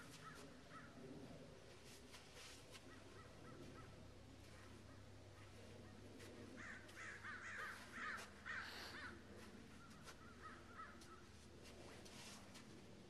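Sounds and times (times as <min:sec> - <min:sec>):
faint bird calls: 0:00.0 - 0:01.2, 0:02.7 - 0:11.4.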